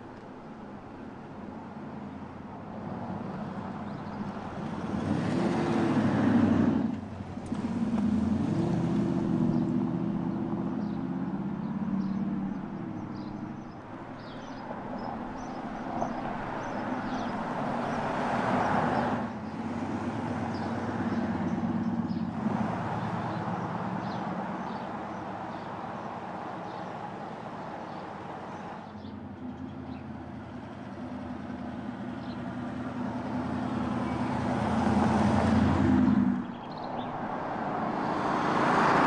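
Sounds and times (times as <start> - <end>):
diesel suv driving by: 3.1 - 39.0
birds chirping: 3.7 - 5.8, 9.4 - 30.1, 36.4 - 39.0.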